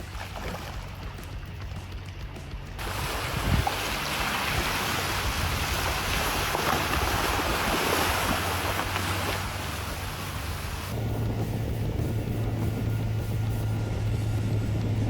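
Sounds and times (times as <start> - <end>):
water rushing and splashing: 0.0 - 1.3, 2.8 - 15.0
wind buffeting microphone: 2.8 - 15.0
steady low hum: 7.0 - 15.0.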